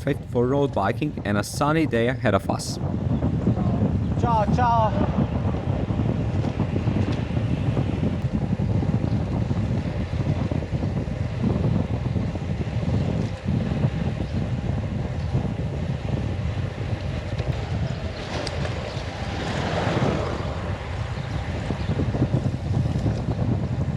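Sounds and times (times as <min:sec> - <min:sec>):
wind buffeting microphone: 0:00.0 - 0:23.9.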